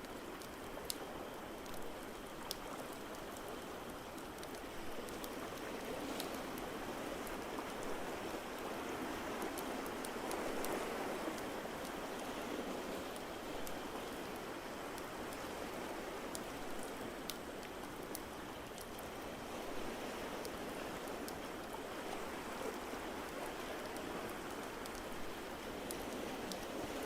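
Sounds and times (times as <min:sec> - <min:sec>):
log fire crackling and popping: 0:01.6 - 0:05.6.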